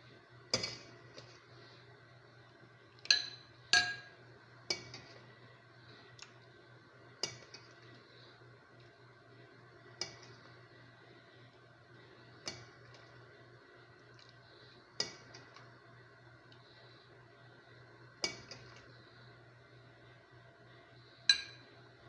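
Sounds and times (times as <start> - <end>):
utensils clinking against cookware: 3.1 - 4.1, 21.3 - 21.6.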